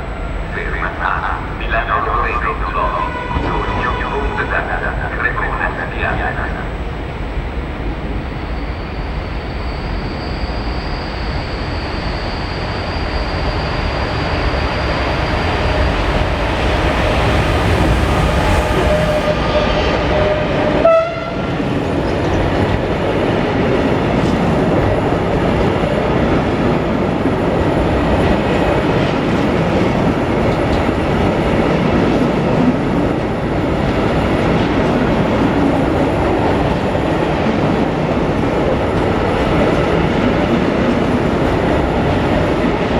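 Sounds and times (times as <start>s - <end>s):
freight train wheels rumbling: 0.0s - 42.9s.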